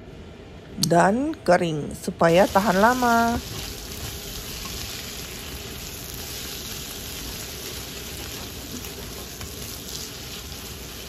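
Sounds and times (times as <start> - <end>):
food sizzling in a pan: 2.3 - 11.0
spatula scraping a pan: 6.1 - 11.0.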